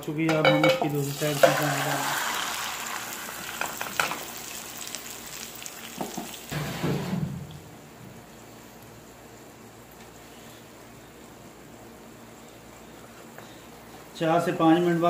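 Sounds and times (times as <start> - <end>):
plate and pan knocks: 0.3 - 0.9
oil sizzling in a frying pan: 0.6 - 6.8.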